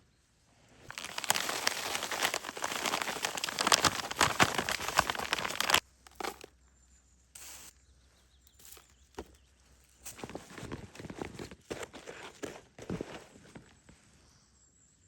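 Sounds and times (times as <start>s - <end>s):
crackling crinkling rustle: 0.8s - 6.5s, 8.5s - 14.0s.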